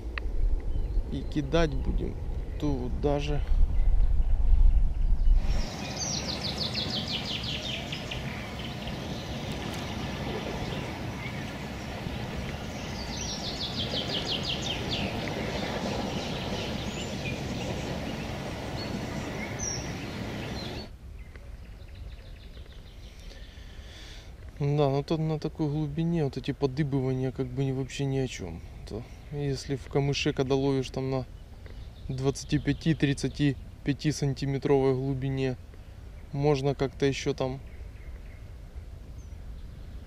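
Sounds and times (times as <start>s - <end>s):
outdoor background hiss: 0.0s - 40.0s
songbird trilling: 5.2s - 23.6s.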